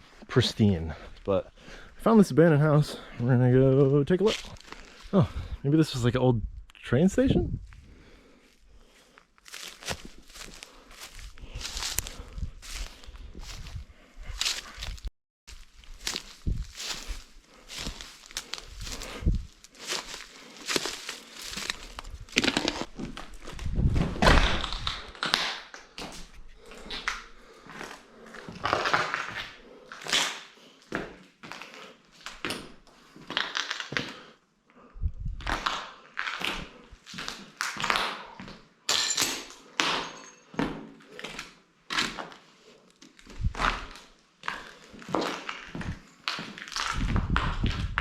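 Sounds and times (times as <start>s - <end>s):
footsteps: 8.4s - 24.2s.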